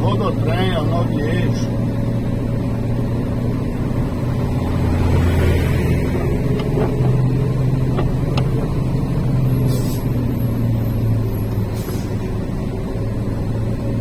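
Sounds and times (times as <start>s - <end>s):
truck engine droning: 0.0s - 14.0s.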